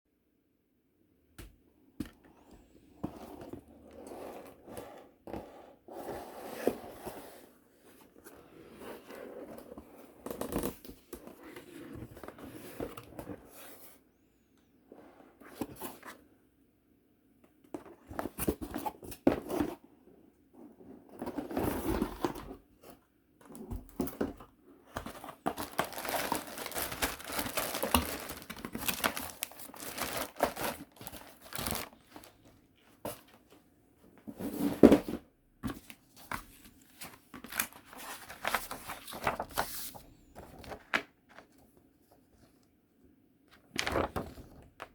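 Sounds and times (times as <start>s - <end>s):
plastic wrapping crinkling: 25.5s - 32.5s.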